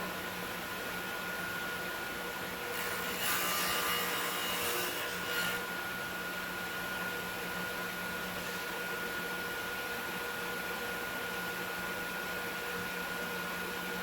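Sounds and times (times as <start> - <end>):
table saw cutting wood: 2.7 - 5.7.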